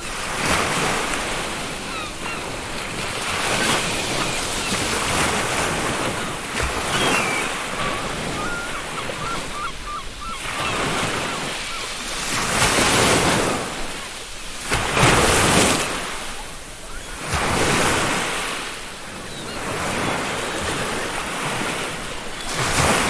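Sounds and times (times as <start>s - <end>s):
ocean surf breaking: 0.0s - 23.0s
gull calls: 1.6s - 14.6s.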